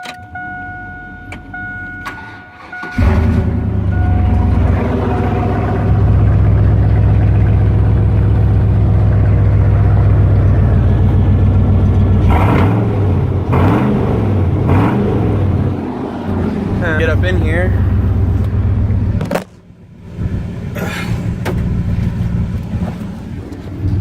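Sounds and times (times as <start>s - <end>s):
pickup truck engine revving: 2.2s - 19.4s.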